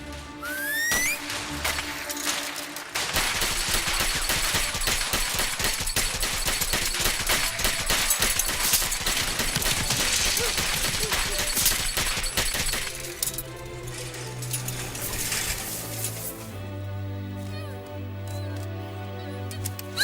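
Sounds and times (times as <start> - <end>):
film score music: 0.0 - 20.0
rapid gunfire: 2.9 - 13.1.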